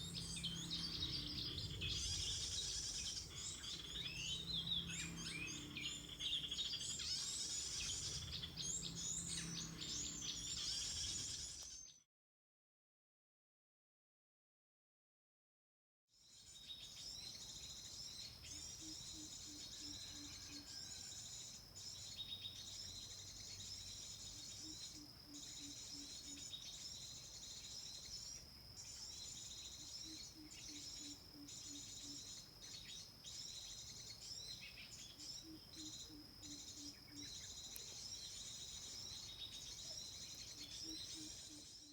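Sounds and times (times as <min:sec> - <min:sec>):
small birds chirping: 0:00.0 - 0:11.9, 0:16.3 - 0:41.9
low pulsed bird call: 0:24.0 - 0:41.9.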